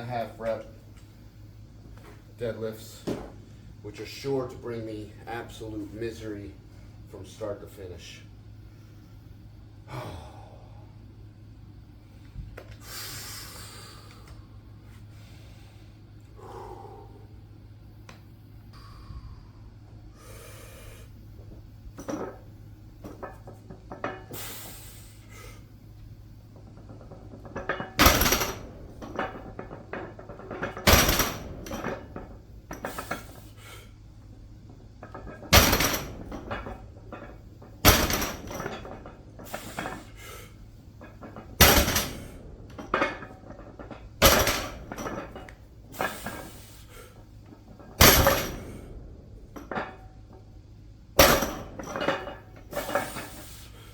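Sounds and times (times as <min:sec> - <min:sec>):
weight plates clanking: 0:26.4 - 0:50.4, 0:51.2 - 0:53.6.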